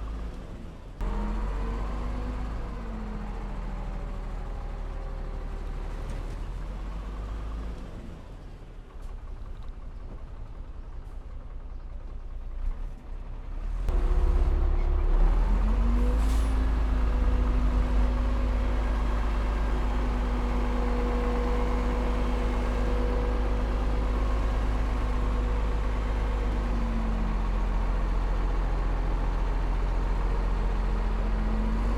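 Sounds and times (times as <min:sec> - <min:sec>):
heavy diesel engine revving: 0:01.0 - 0:06.0, 0:13.6 - 0:31.9.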